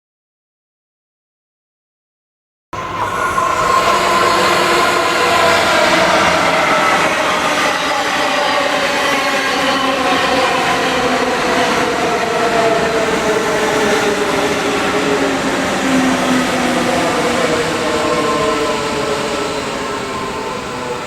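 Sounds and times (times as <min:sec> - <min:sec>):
train rumbling on tracks: 0:02.8 - 0:21.0.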